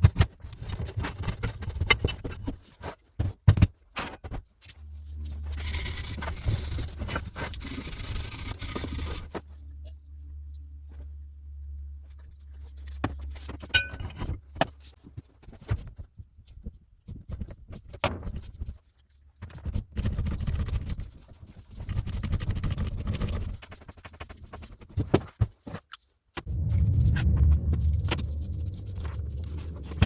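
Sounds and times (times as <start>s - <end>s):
rough rumbling handling noise: 26.5s - 30.0s.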